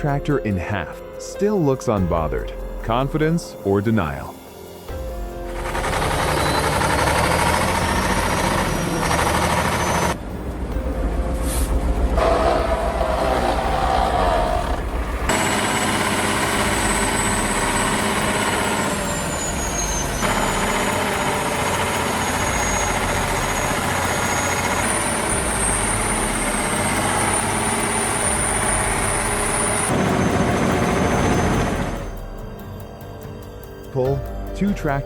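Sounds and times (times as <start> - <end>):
heavy machinery engines running: 4.8 - 32.3.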